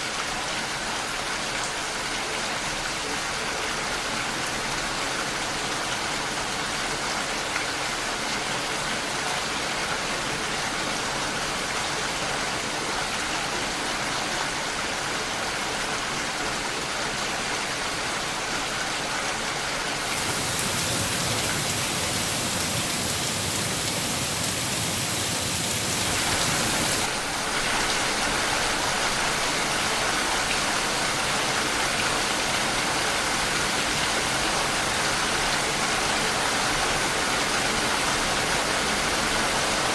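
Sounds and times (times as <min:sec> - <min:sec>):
rain falling: 0:17.1 - 0:39.9.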